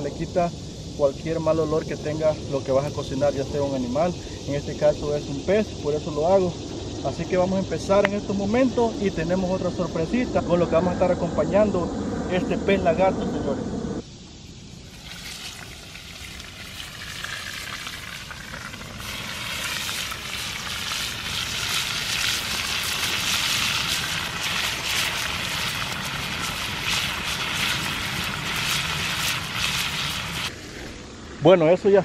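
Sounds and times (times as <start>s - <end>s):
fish frying in hot oil: 14.9s - 30.8s.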